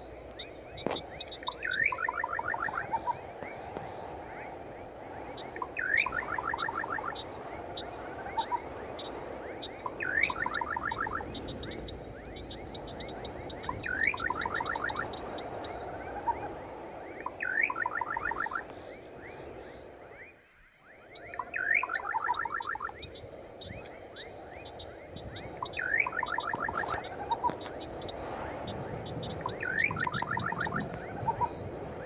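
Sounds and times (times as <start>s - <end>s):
crickets chirring: 0.0s - 32.0s
low rushing wind: 0.0s - 32.0s
bird call: 0.8s - 4.1s, 5.3s - 16.6s.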